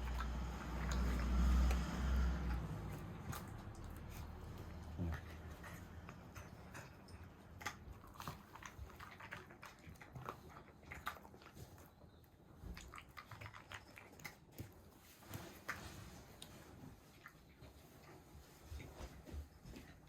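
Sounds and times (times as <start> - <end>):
dog chewing and biting: 0.0 - 20.0.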